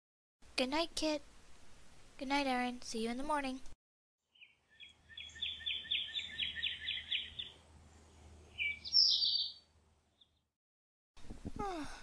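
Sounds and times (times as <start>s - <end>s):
bird trilling: 4.3s - 7.6s, 8.5s - 10.3s
high bird chirps: 4.3s - 7.6s, 8.5s - 10.4s.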